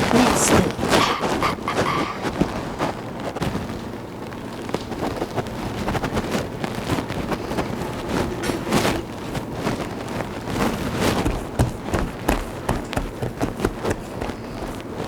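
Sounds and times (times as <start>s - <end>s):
rustling: 4.5s - 15.0s
knocks and taps in kitchen: 11.2s - 14.8s.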